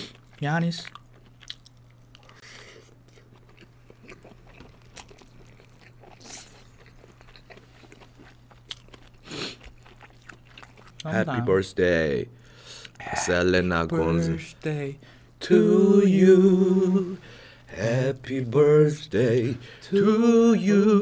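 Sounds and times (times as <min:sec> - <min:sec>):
sausage chewing mouth noises: 0:00.0 - 0:11.1, 0:12.6 - 0:13.4
steady low hum: 0:00.0 - 0:21.0.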